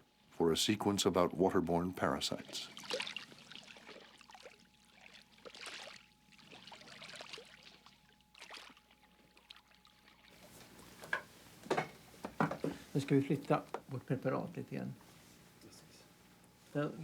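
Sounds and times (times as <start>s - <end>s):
thin steady whine: 0.0s - 17.0s
water sloshing and trickling: 1.6s - 11.3s.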